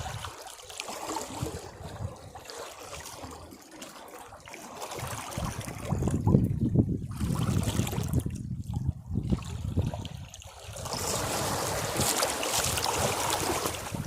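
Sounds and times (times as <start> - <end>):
sea waves washing against rocks: 10.4 - 14.0.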